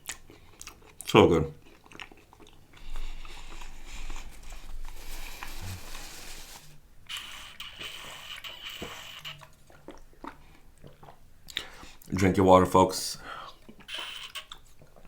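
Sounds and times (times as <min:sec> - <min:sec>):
mouth sounds eating and drinking: 0:07.0 - 0:15.0.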